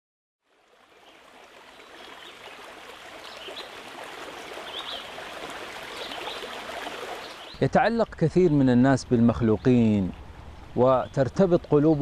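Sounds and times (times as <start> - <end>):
stream flowing: 0.4 - 12.0.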